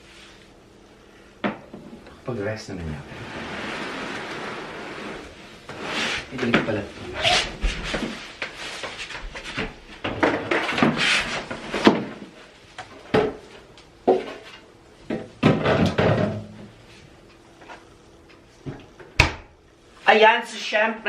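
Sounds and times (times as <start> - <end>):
rustling scrapes: 3.0 - 9.6, 10.5 - 11.9
objects knocking and bumping: 7.6 - 16.7.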